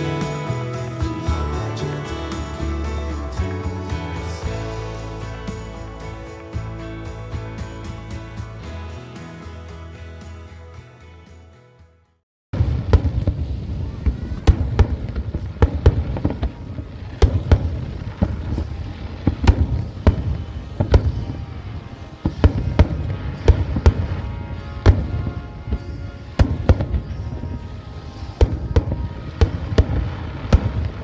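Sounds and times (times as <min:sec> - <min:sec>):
fireworks bangs: 0:12.6 - 0:31.0
low rumble of fireworks: 0:12.6 - 0:31.0.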